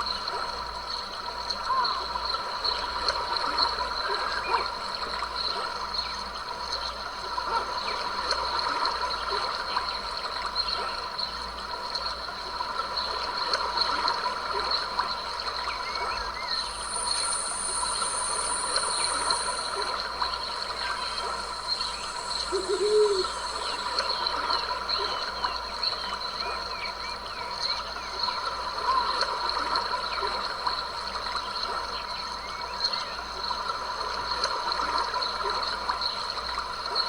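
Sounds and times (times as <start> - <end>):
creek trickling and gurgling: 0.3 - 37.0
high hiss: 16.5 - 24.6.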